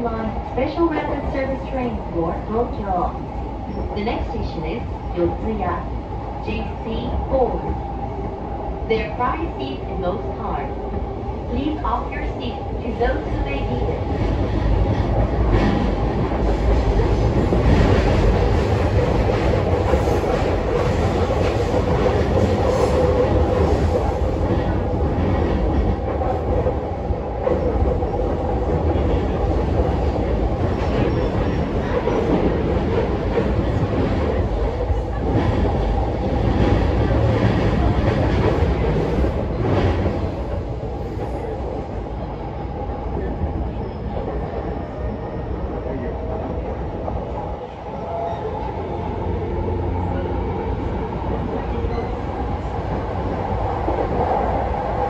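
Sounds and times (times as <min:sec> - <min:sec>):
train interior hum: 0:00.0 - 0:55.0
train wheels rumbling on rail: 0:00.0 - 0:55.0.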